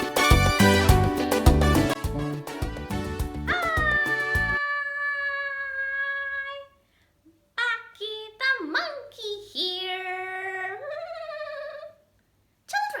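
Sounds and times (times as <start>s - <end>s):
high-pitched puppet voice singing: 7.6s - 12.0s.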